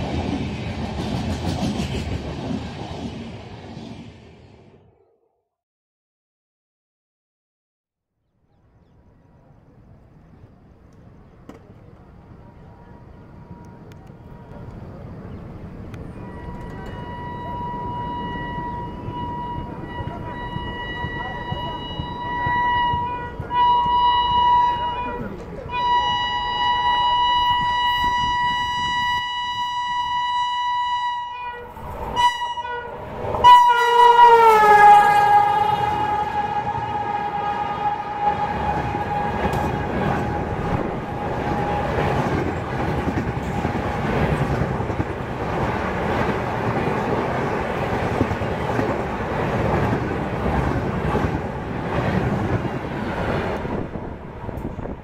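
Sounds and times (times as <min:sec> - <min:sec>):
train wheels on rails: 0:00.0 - 0:04.4, 0:09.9 - 0:30.3, 0:31.6 - 0:55.0
locomotive horn blasts: 0:16.1 - 0:42.3.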